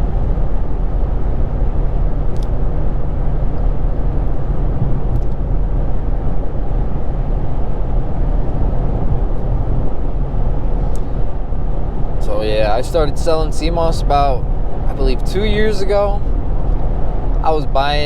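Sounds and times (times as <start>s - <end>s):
low exhaust drone: 0.0s - 18.0s
road noise: 0.0s - 18.0s.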